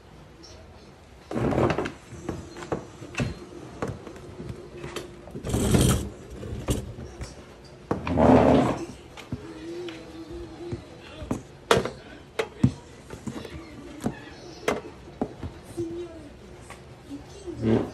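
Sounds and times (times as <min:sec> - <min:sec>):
loud scraping rustling: 0:05.4 - 0:06.9, 0:08.1 - 0:08.9.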